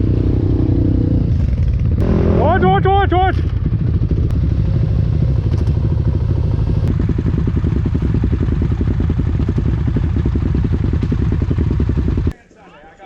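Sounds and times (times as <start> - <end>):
atv engine running: 0.0 - 12.4.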